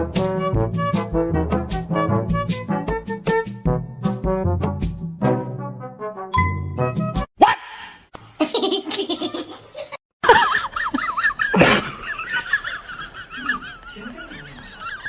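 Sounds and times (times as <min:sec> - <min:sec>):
laughter: 0:08.4 - 0:15.0.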